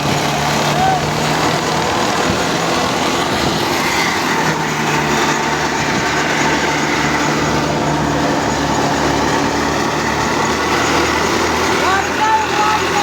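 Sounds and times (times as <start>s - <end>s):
threshing machine clatter: 0.0s - 13.0s
tractor engine running: 0.0s - 13.0s.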